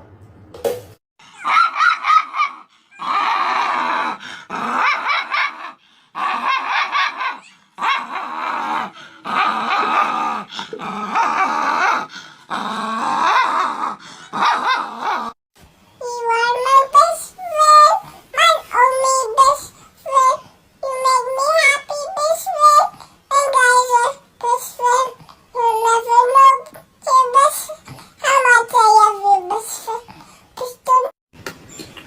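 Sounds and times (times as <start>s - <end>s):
dog grumbling and howling: 1.2s - 15.4s.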